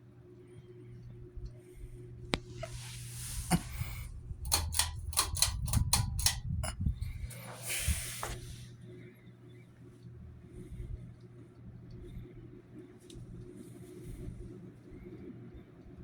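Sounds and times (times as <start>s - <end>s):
ceiling fan motor humming: 0.0s - 16.0s
sharp clicks: 4.4s - 6.5s
rustling hiss: 7.4s - 8.7s.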